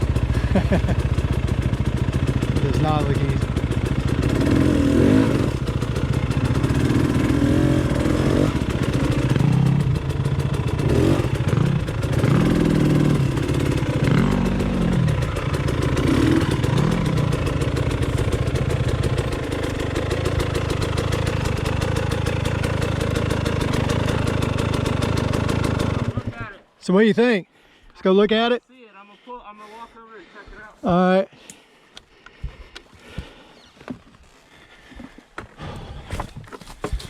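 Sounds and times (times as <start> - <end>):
dirt bike engine revving: 0.0 - 26.5.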